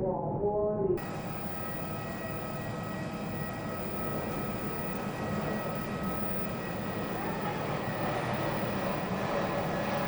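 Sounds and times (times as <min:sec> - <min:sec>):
jet engines whining and rumbling: 0:01.0 - 0:10.0
faint voices: 0:05.0 - 0:10.0.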